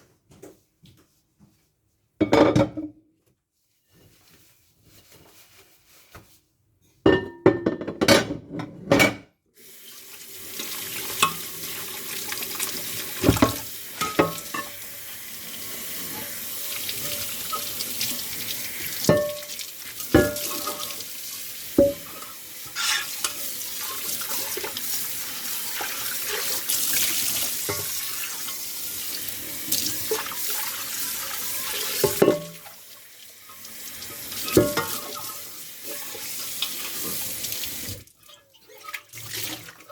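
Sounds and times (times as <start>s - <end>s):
dishes clattering: 2.2s - 3.0s, 7.1s - 9.3s, 13.2s - 14.8s, 19.1s - 19.5s, 20.1s - 21.0s, 32.0s - 32.6s, 34.5s - 35.2s
tap running into sink: 13.2s - 14.6s.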